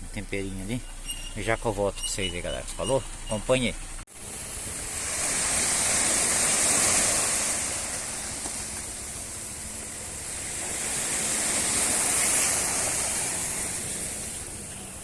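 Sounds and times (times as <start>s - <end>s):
surf washing onto beach: 4.1s - 15.0s.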